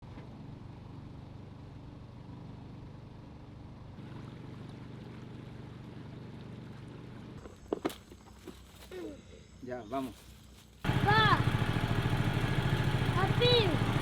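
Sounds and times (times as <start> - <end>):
boat motor running: 10.8 - 14.0.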